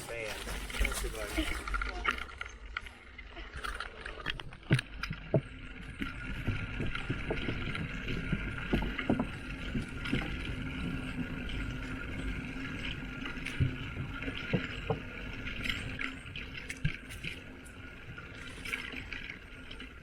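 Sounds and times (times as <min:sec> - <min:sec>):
bicycle running noise: 0:00.0 - 0:20.0
bicycle knocks and rattles: 0:04.5 - 0:17.6.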